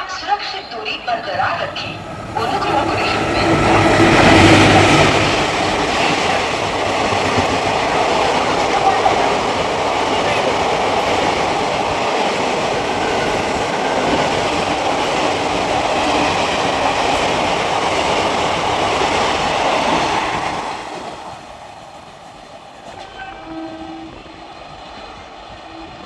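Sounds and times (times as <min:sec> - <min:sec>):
station noise: 0:00.0 - 0:20.5
train rushing past: 0:00.0 - 0:26.0.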